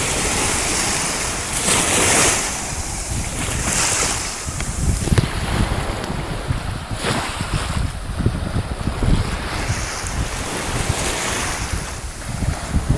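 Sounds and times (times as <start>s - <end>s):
wave swishing: 0.0s - 7.5s
small waves washing: 0.0s - 12.9s
wind buffeting microphone: 0.0s - 12.9s.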